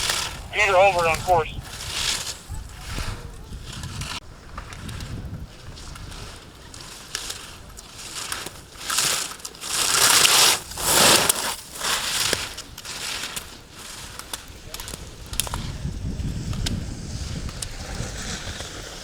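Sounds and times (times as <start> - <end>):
skis scraping on hard snow: 0.0 - 15.2.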